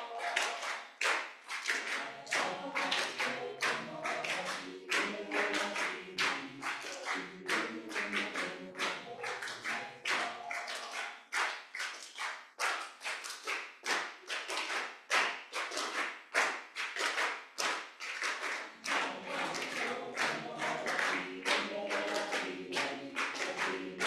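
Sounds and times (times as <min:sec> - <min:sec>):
choir singing: 0:00.0 - 0:00.8, 0:01.7 - 0:11.1, 0:18.8 - 0:24.0
rhythmic hand clapping: 0:00.0 - 0:24.0.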